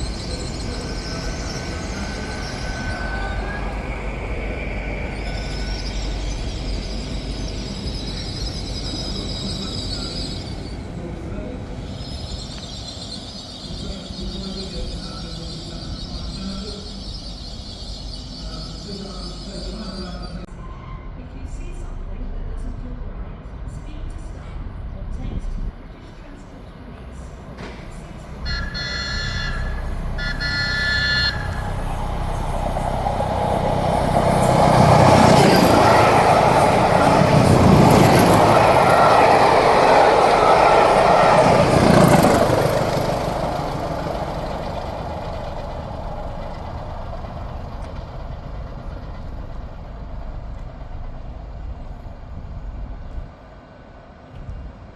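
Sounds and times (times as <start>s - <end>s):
train passing rumble: 0.0s - 54.9s
train horn blasts: 28.4s - 31.9s.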